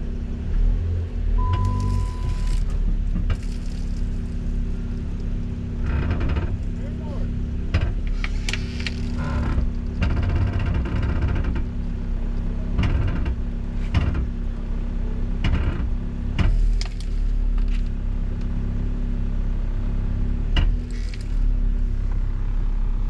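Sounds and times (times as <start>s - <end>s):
engine running steadily: 0.0s - 23.0s
clanks and knocks: 4.9s - 6.8s, 7.6s - 11.8s, 12.6s - 14.4s, 15.4s - 17.1s.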